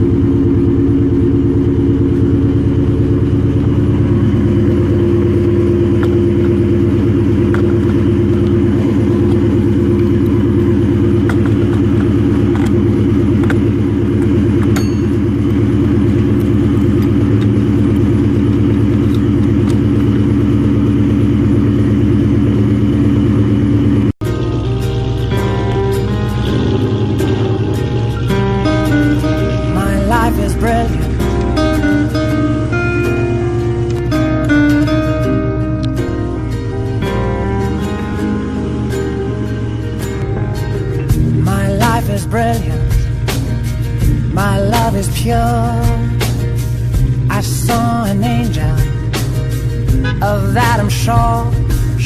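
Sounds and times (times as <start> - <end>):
car engine running steadily: 0.0 - 52.0.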